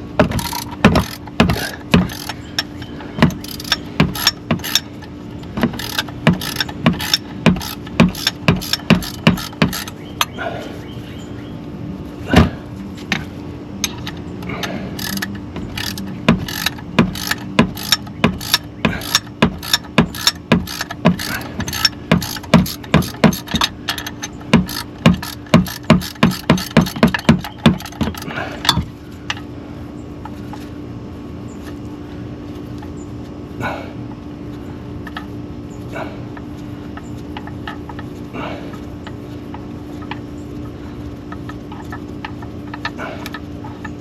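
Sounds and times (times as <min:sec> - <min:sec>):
steady low hum: 0:00.0 - 0:44.0
ratchet wrench clicking: 0:00.3 - 0:04.9, 0:05.7 - 0:09.9, 0:15.0 - 0:28.3.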